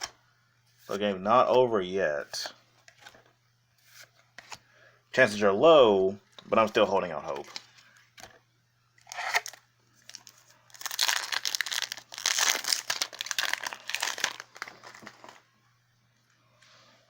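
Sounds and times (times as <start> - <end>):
foil wrapper crinkling and tearing: 9.0 - 15.5.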